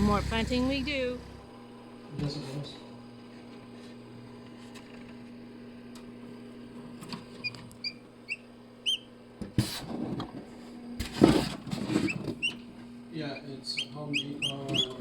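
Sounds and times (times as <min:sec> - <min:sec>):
small bird chirping: 0:07.8 - 0:09.1, 0:12.1 - 0:12.6, 0:13.3 - 0:15.0.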